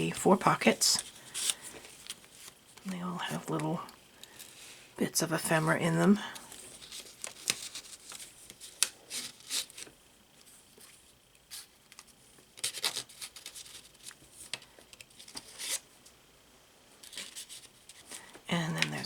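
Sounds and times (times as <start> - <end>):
paper and card rustling: 0.0 - 3.7, 6.4 - 10.0, 10.7 - 15.9, 17.0 - 19.0.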